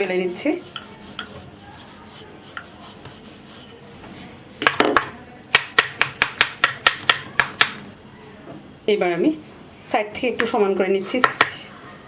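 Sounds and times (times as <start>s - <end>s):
utensil tapping on wooden board: 4.7s - 7.8s.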